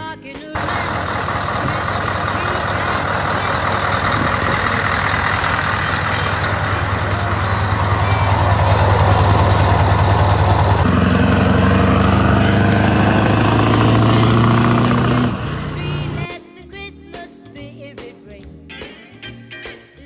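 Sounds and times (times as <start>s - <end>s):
diesel truck engine running: 0.6s - 16.3s.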